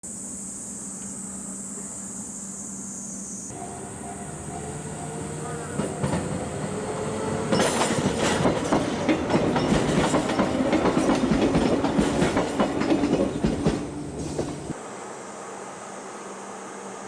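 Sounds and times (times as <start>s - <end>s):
tram motor hum: 3.5s - 17.0s
tram wheels clattering on rails: 3.6s - 14.8s.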